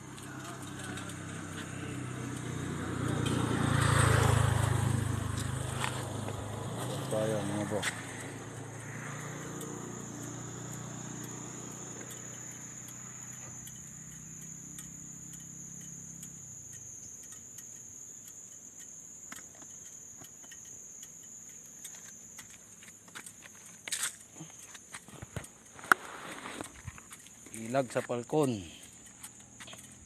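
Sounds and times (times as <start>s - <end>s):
low engine rumble: 0.0s - 12.7s
insects droning: 0.0s - 30.0s.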